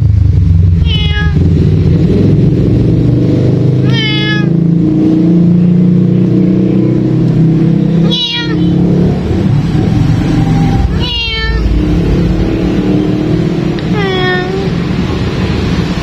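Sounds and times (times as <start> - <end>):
low engine-like drone: 0.0 - 16.0
cat meowing: 0.8 - 1.5, 3.8 - 4.6, 8.0 - 8.9, 10.8 - 11.8, 13.8 - 14.8.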